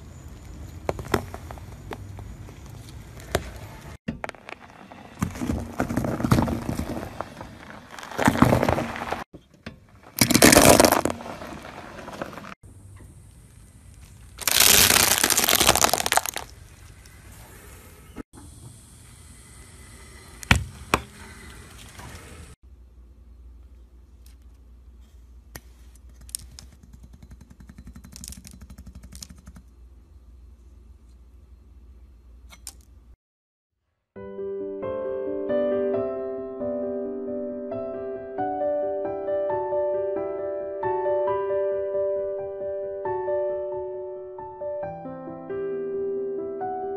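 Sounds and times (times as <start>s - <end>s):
tyre crushing brittle objects: 4.1s - 9.3s, 10.0s - 12.5s, 14.0s - 16.6s
seashells shattering under tyre: 10.0s - 12.4s, 14.4s - 16.6s.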